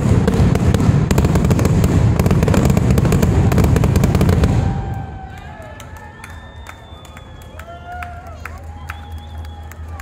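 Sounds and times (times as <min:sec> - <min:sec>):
fireworks bangs and crackles: 0:00.0 - 0:05.5.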